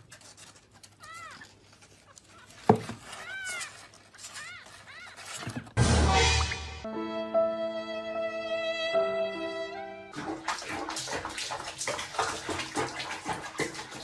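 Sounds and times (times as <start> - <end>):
loud rushing noise: 5.8 - 6.9.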